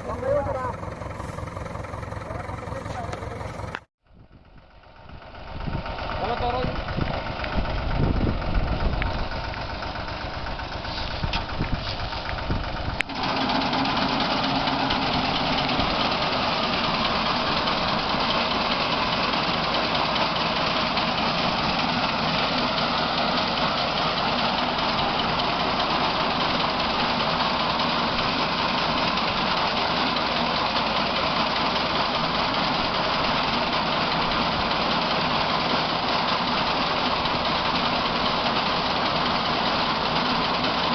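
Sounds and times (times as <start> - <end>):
steady machine noise: 0.0 - 3.9, 5.0 - 40.9
tractor engine running: 0.0 - 40.9.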